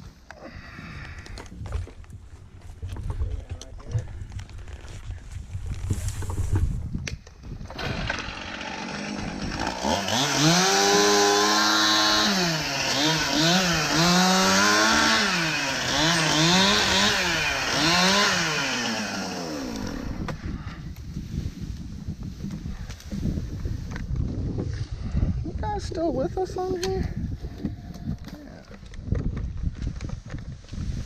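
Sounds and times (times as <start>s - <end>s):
chainsaw revving: 7.6s - 20.4s.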